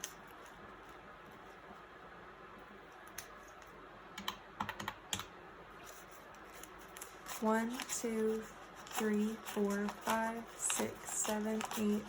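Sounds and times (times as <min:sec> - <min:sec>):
hands handling paper cash: 0:05.8 - 0:12.0.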